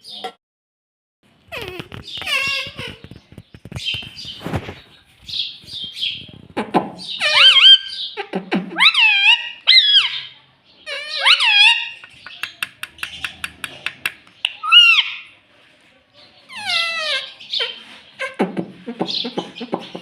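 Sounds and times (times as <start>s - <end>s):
parrot clicks and chatter: 1.5s - 4.4s, 9.0s - 15.3s.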